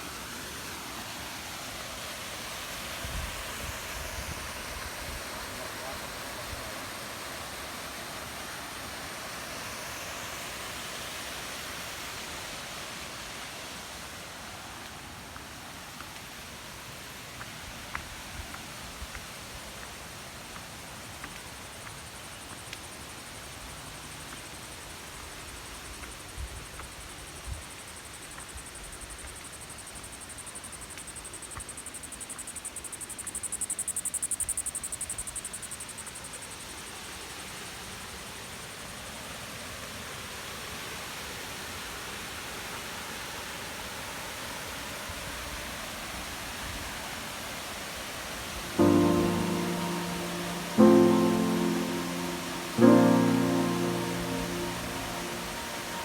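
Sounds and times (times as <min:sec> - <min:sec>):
stream water rushing: 0:47.2 - 0:56.0.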